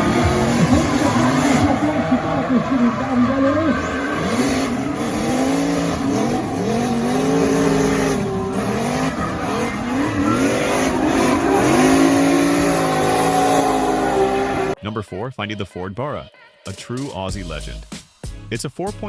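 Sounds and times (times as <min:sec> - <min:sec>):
car engine revving: 0:00.0 - 0:14.8.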